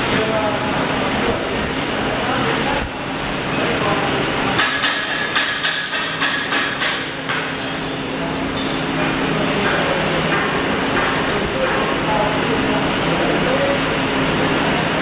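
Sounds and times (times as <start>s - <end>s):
steady loud noise with low hum: 0.0s - 15.0s
sharp metal knocks: 4.6s - 8.0s.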